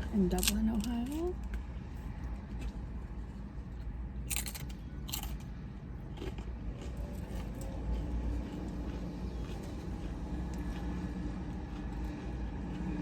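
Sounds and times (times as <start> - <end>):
crunchy food bites: 4.3 - 5.5, 6.1 - 11.0
quiet chewing: 6.1 - 13.0.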